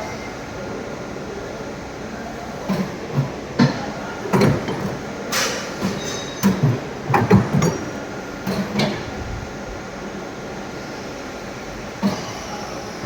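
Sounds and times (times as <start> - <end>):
metallic clanks with ringing: 4.4 - 9.0.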